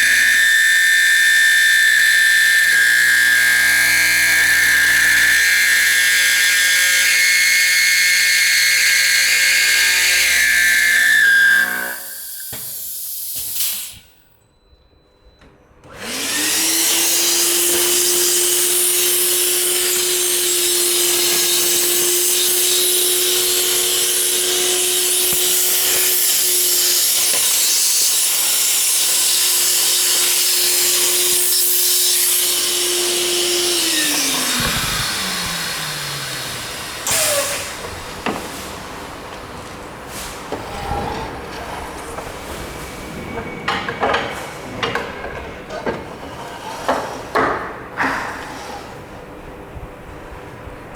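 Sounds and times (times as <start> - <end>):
router motor milling steel: 0.0 - 13.9, 15.9 - 38.7
motor whine spinning up: 33.5 - 37.9.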